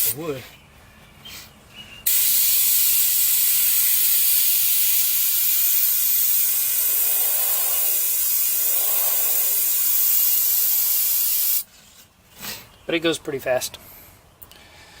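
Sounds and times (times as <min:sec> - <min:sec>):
airbrush spraying hiss: 0:02.1 - 0:11.7.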